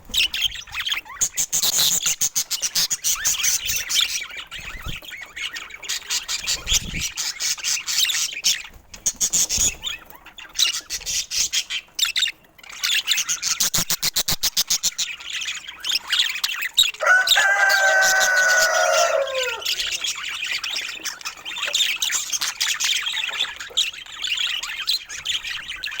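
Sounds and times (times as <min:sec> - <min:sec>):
parrots chattering: 0:12.2 - 0:24.5
held bird call: 0:17.0 - 0:20.2.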